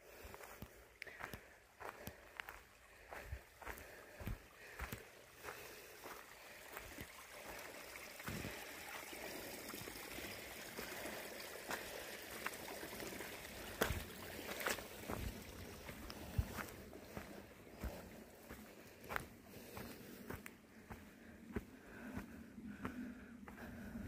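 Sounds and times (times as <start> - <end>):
footsteps on a path: 0.0 - 24.0
stream water rushing: 4.6 - 19.9.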